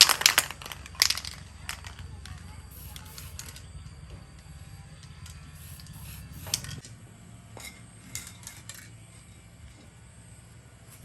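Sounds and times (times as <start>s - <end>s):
small metal objects clinking: 0.0s - 6.9s, 7.6s - 9.4s.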